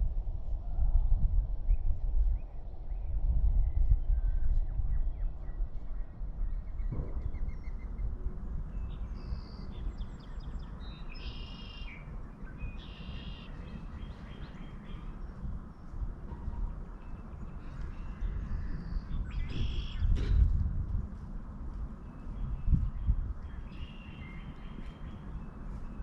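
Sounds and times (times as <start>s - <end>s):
birds chirping: 6.1s - 20.2s, 21.6s - 26.0s
harsh bird calls: 8.8s - 15.4s.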